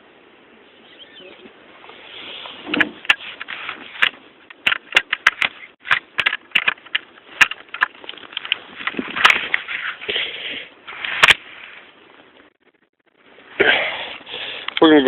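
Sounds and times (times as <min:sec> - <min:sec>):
footsteps crunching through snow: 0:10.8 - 0:12.4.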